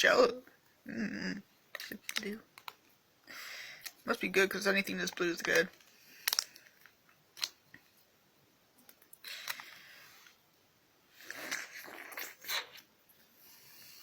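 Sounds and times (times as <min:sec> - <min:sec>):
sucking and slurping: 0:11.1 - 0:14.0.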